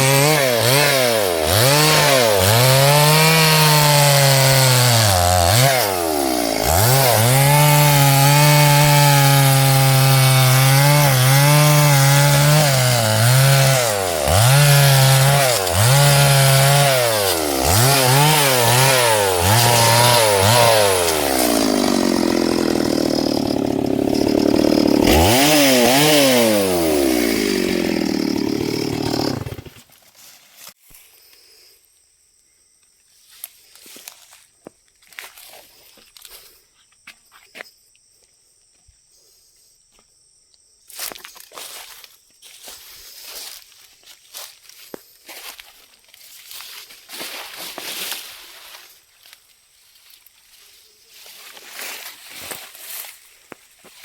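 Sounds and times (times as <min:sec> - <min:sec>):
chainsaw cutting log: 0:00.0 - 0:29.9.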